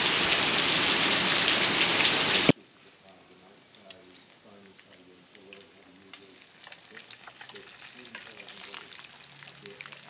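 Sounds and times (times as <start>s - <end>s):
fish deep-frying in hot oil: 0.0s - 2.5s, 6.1s - 10.0s.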